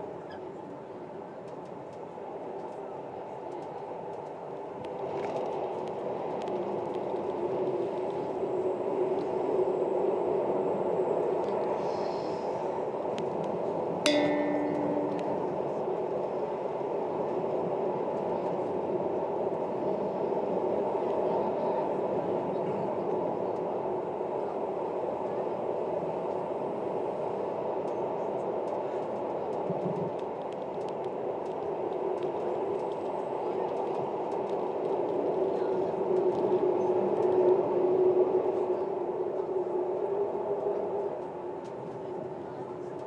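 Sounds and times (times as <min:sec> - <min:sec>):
train wheels rumbling on rails: 0:00.0 - 0:43.0
brief low tone: 0:14.1 - 0:15.9.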